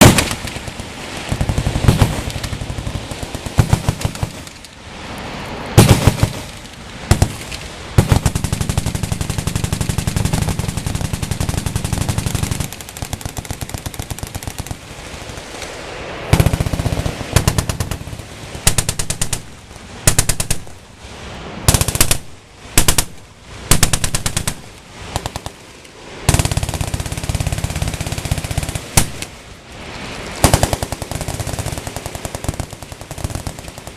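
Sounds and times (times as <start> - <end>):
machine guns firing: 0.0 - 4.6, 5.8 - 15.5, 16.3 - 19.5, 21.7 - 25.6, 26.3 - 29.3, 30.4 - 33.9.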